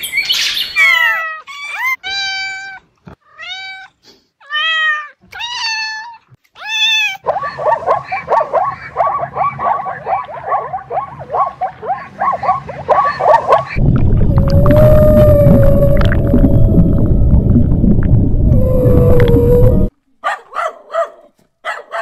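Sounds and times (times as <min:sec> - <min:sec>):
cat meowing: 0:01.0 - 0:07.2
low hum: 0:07.6 - 0:19.9.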